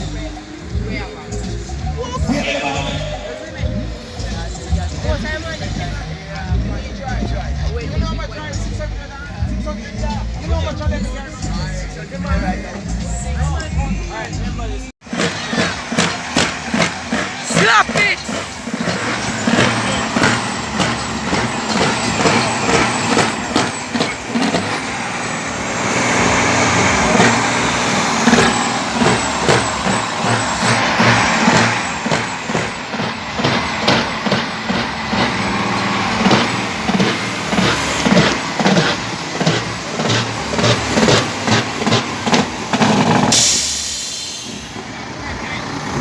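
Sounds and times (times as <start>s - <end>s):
diesel truck engine revving: 0.0s - 46.0s
air hiss: 43.2s - 44.9s.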